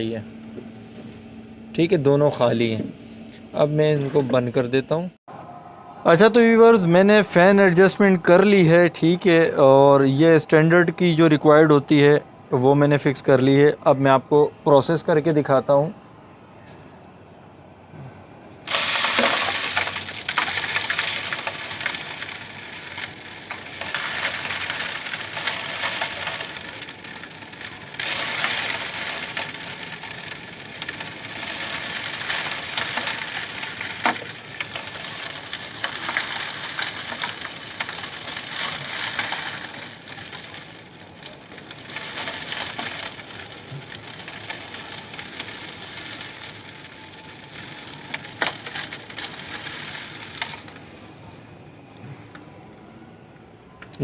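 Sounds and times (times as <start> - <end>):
fan blowing air: 0.0 - 15.9
seed rattling through cleaning machine: 18.7 - 51.0.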